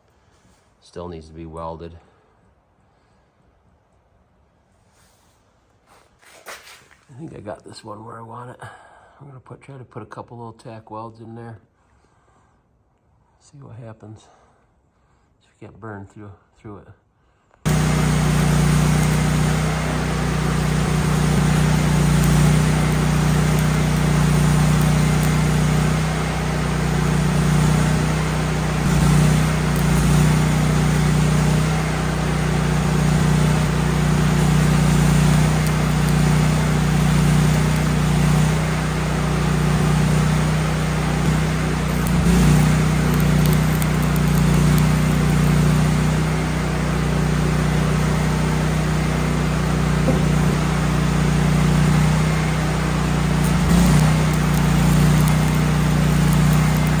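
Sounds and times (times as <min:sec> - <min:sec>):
welder engine running: 0:17.7 - 0:57.0
welding arc hiss and crackle: 0:17.7 - 0:57.0.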